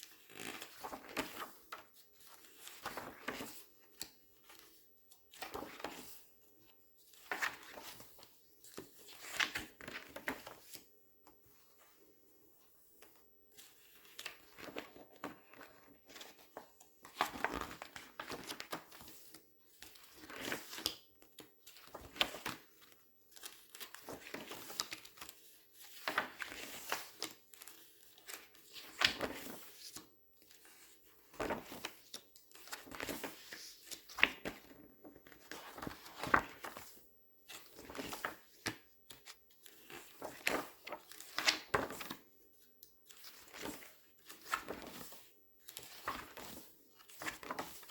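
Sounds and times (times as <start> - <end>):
paper pages rustling: 0.1 - 3.7, 4.5 - 6.2, 7.1 - 10.8, 13.1 - 21.0, 30.6 - 42.2, 43.1 - 47.9.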